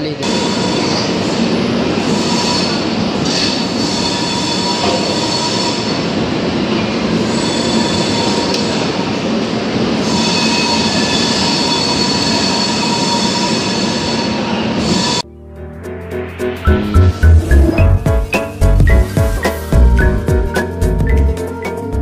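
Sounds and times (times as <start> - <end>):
high wheel squeal: 0.2 - 6.3, 7.1 - 9.2, 10.0 - 15.2.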